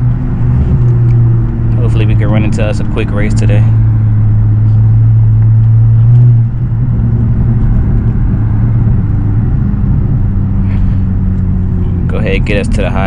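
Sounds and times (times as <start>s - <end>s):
car engine droning: 0.0s - 13.0s.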